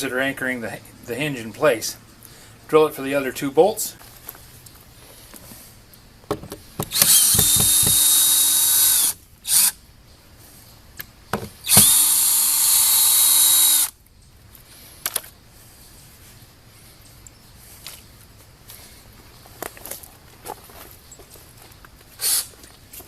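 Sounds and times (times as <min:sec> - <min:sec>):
cordless drill whining: 0:06.8 - 0:09.7, 0:11.6 - 0:14.0.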